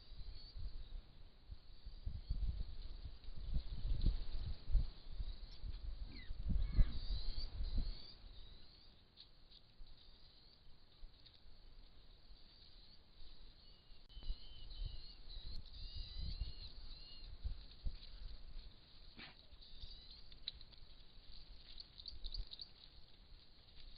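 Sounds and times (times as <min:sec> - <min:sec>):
small birds chirping: 0:00.0 - 0:01.0, 0:01.6 - 0:11.3, 0:12.1 - 0:23.1.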